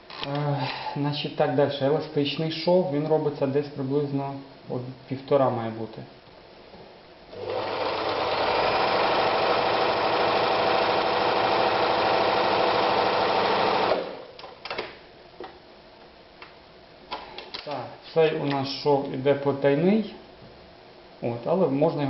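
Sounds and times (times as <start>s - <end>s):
sewing machine running: 7.4s - 14.2s.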